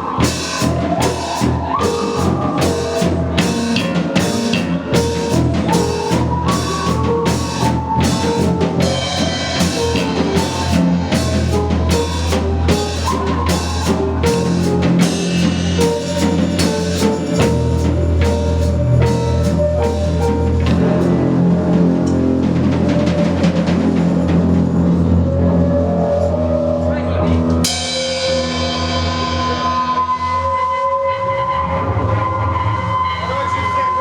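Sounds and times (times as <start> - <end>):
drum kit beat: 0.0 - 25.2
bass guitar line: 0.0 - 30.5
keyboard melody of held notes: 0.0 - 34.0.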